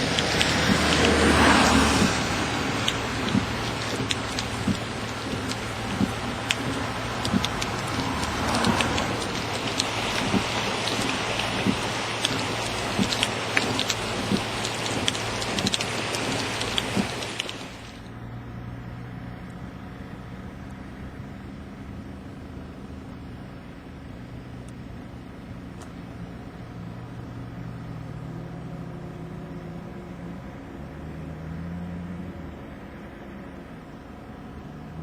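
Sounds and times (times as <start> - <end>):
loud rain: 0.0 - 18.1
vehicle engine humming: 0.0 - 35.0.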